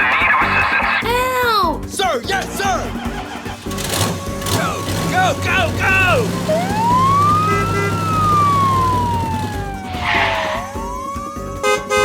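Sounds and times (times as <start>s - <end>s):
emergency vehicle siren wailing: 3.7s - 12.0s.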